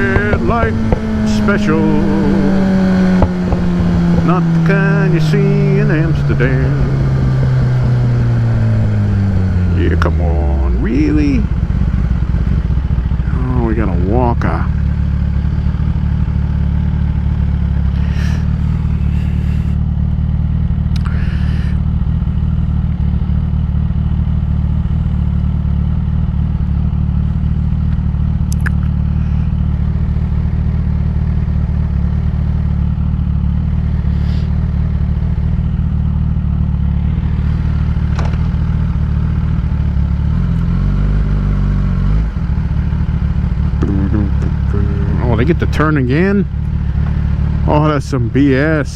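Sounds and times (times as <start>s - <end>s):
motorcycle engine idling: 0.0s - 48.9s.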